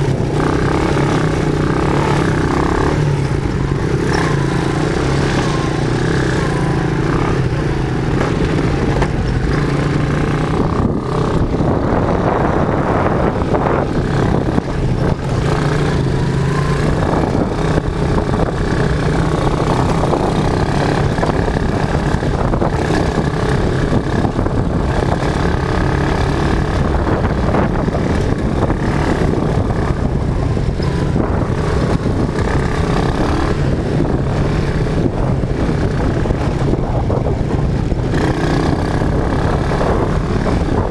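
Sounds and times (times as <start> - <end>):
quad bike engine droning: 0.0 - 40.9.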